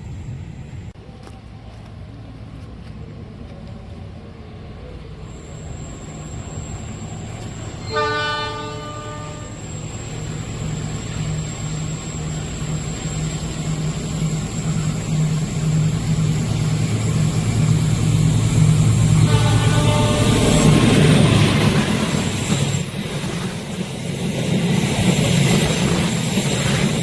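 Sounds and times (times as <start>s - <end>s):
train rumble: 0.0s - 27.0s
train horn: 7.8s - 9.8s, 19.1s - 21.0s.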